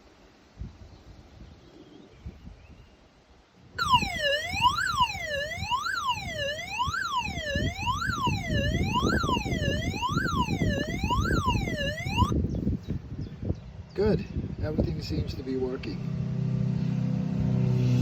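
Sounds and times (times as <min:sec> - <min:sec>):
robot mower alarm siren: 0:03.8 - 0:12.3.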